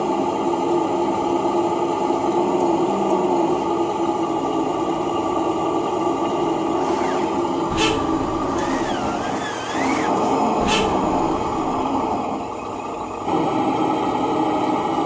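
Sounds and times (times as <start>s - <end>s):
steady motor hum: 2.3s - 15.0s.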